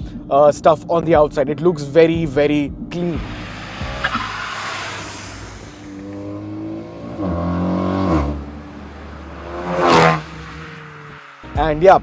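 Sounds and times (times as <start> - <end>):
car engine accelerating: 3.1 - 12.0.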